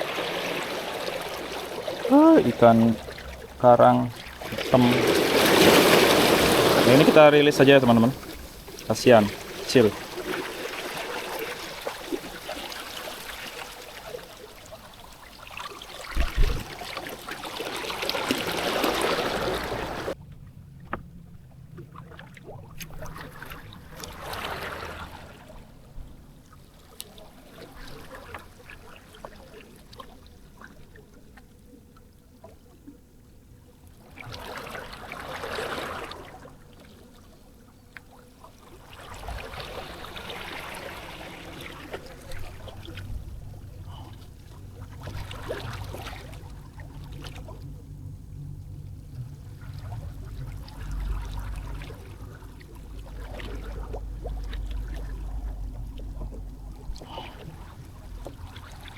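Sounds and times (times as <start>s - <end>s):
small waves washing ashore: 0.0s - 20.2s, 21.8s - 58.9s
short low thump: 16.2s - 16.7s.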